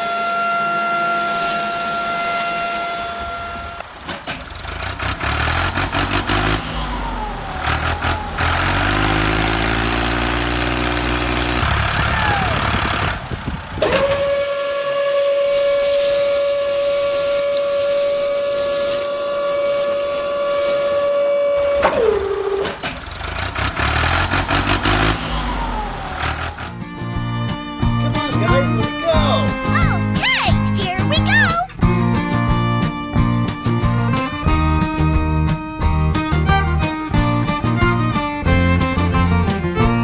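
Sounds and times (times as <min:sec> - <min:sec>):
long steady horn-like tone: 0:00.0 - 0:04.5, 0:13.8 - 0:22.8
truck engine running: 0:00.0 - 0:40.0.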